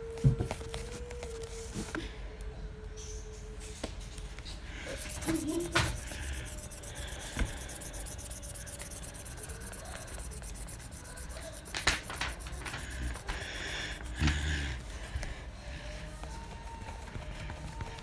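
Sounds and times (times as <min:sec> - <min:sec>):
rubbing on paper page: 0:04.7 - 0:18.0.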